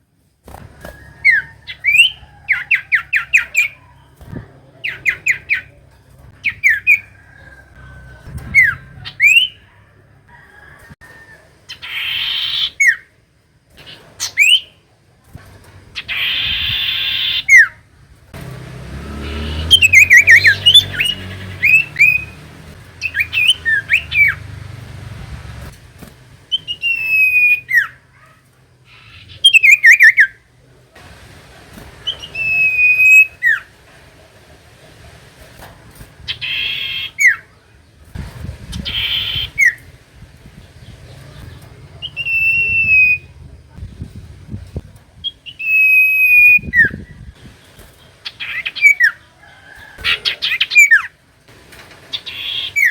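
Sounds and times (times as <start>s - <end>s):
harsh buzzy bird calls: 0.6s - 10.0s, 11.2s - 14.9s, 15.9s - 33.9s, 35.5s - 43.8s, 45.2s - 51.2s, 52.0s - 52.9s
low rumble: 18.0s - 26.5s
bird whistling sliding phrases: 19.2s - 22.4s, 23.0s - 24.5s, 26.5s - 28.0s, 32.0s - 33.6s.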